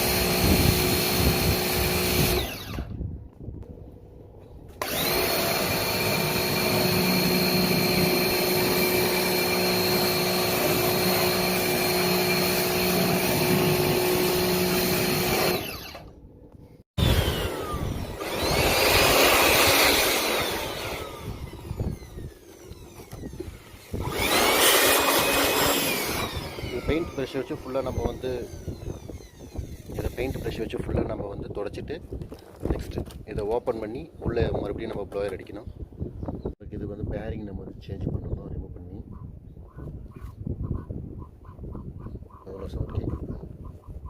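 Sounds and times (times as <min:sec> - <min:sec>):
electric air blower running: 0:00.0 - 0:03.0, 0:04.7 - 0:16.2, 0:17.0 - 0:30.7.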